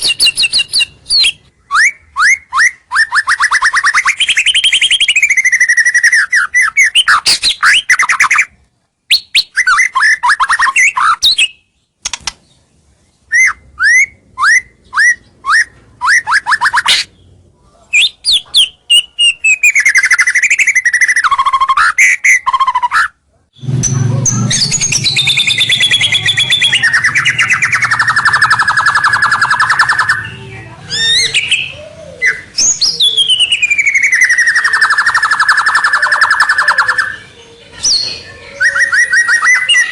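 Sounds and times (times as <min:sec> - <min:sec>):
bird singing chirps and trills: 0:00.0 - 0:23.0, 0:23.6 - 0:39.9
low hum: 0:23.6 - 0:29.0.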